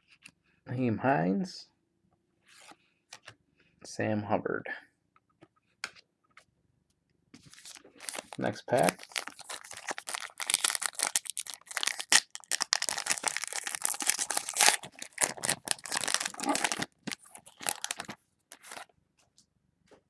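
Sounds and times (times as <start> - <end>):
plastic wrapper crinkling: 7.4 - 18.9.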